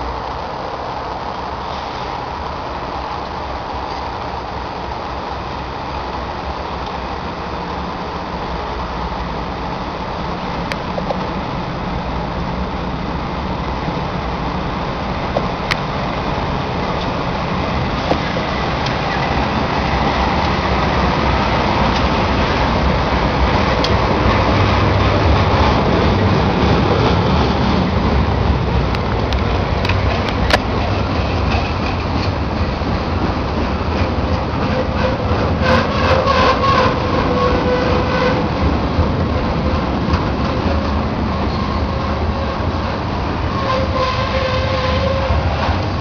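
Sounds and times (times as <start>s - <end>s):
diesel locomotive rumble: 0.0s - 46.0s
wheels clacking over rail joints: 1.2s - 46.0s
metallic squeal: 34.7s - 38.4s, 41.3s - 42.6s, 43.5s - 45.4s.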